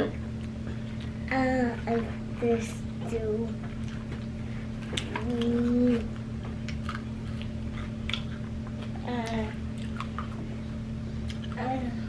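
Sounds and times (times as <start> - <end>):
steady low hum: 0.0 - 12.0
biting and chewing food: 3.6 - 10.6, 11.2 - 11.8.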